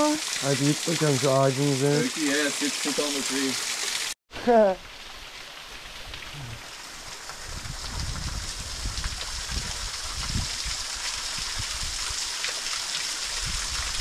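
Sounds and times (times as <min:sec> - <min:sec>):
flowing water rushing: 0:00.0 - 0:04.2.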